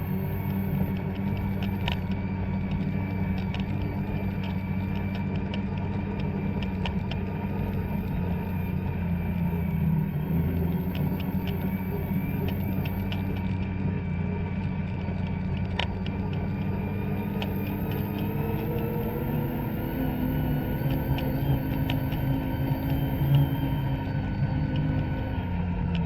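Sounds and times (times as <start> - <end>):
light ticks: 0.0 - 13.6, 14.6 - 26.0
snowmobile engine running: 0.0 - 26.0.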